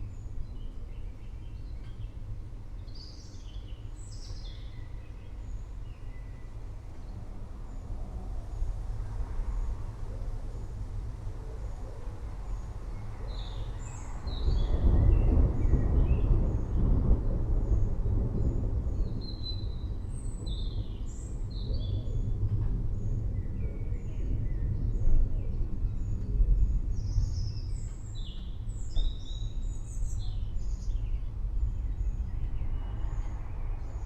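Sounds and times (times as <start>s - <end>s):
songbirds chirping: 0.0s - 9.8s, 17.6s - 34.0s
thunder rumbling: 12.0s - 27.9s.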